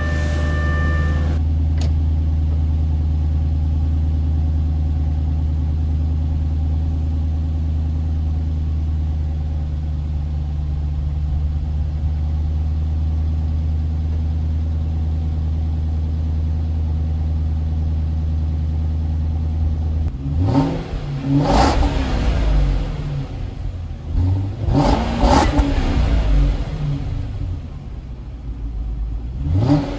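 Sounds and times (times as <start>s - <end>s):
high electronic tone: 0.0s - 1.4s
car engine idling: 0.0s - 29.9s
click: 1.8s - 2.0s.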